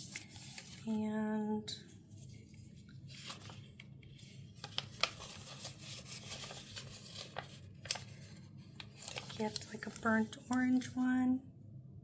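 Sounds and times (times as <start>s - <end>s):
stickers peeling with papery rustle: 3.1s - 11.1s.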